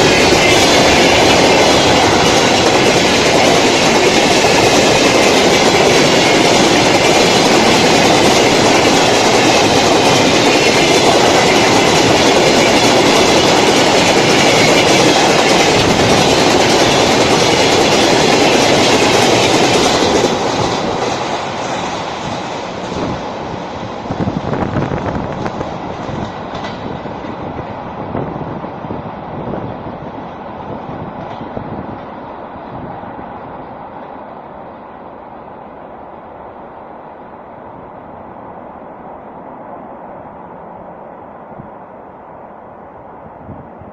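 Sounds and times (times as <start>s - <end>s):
wheels clickety-clack: 0.0s - 22.0s, 26.0s - 27.4s
freight train rumbling past: 0.0s - 43.9s.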